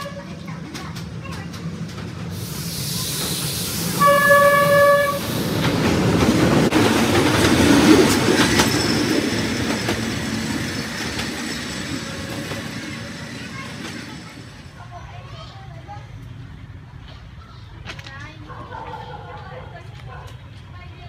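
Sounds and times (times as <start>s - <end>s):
train horn blast: 0.0s - 0.3s, 3.9s - 5.4s
wheels clicking over rail joints: 0.0s - 2.4s
train engine and wheels rumbling: 0.0s - 21.0s.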